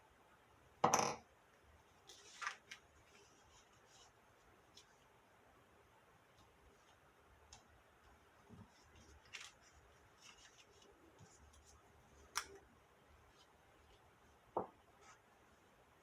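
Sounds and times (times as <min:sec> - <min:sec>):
paper rustling: 0:02.0 - 0:05.0, 0:08.4 - 0:12.7.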